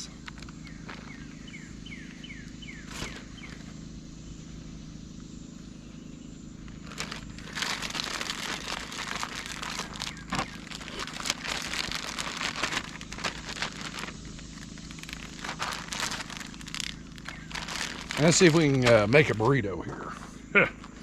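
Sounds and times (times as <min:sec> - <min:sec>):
steady low hum: 0:00.0 - 0:21.0
plastic packaging crinkling: 0:02.9 - 0:03.6, 0:06.7 - 0:19.6.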